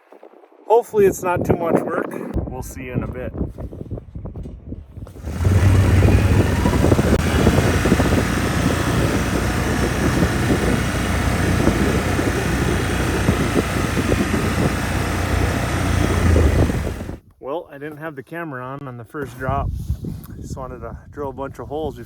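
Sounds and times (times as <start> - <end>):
engine running loudly: 5.2 - 17.2.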